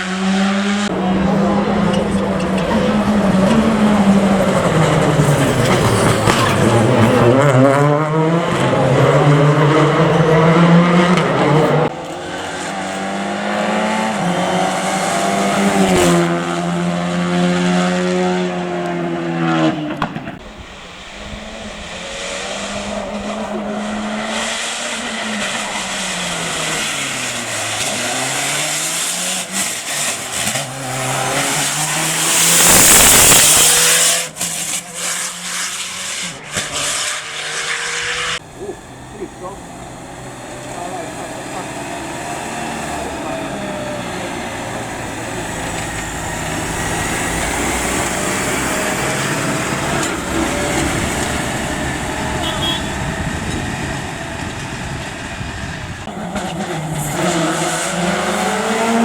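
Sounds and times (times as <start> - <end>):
rally car engines revving: 0.0 - 59.0
loud rush of noise: 28.8 - 34.4, 37.8 - 56.2.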